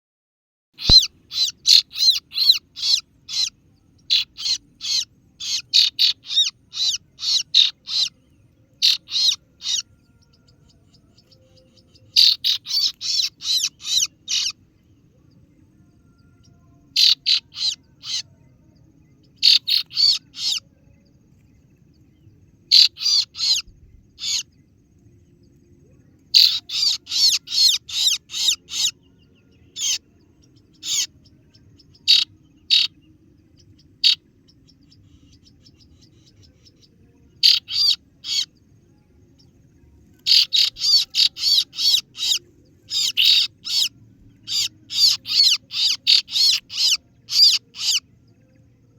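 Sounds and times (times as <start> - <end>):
bird chirping sharply: 0.8 - 8.1, 8.8 - 9.9, 11.6 - 14.6, 17.0 - 18.2, 19.4 - 20.6, 22.7 - 24.5, 26.4 - 29.0, 29.7 - 30.0, 30.7 - 31.1, 32.0 - 33.0, 37.4 - 38.5, 40.2 - 48.1.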